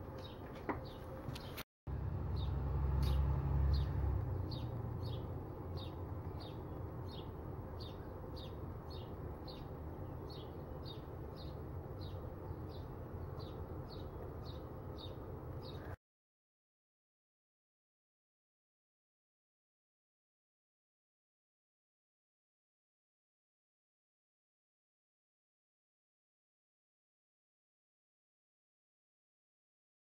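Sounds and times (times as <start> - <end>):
small bird chirping: 2.3 - 16.0.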